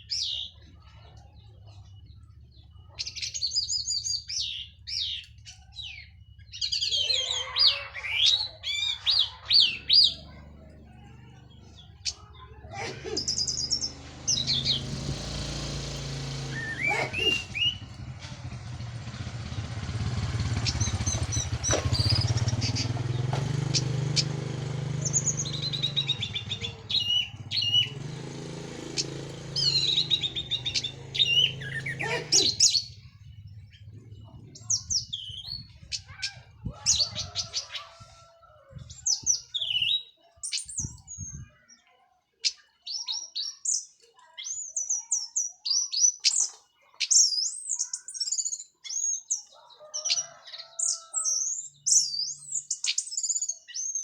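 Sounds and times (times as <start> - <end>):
thrush singing: 8.1 - 35.5.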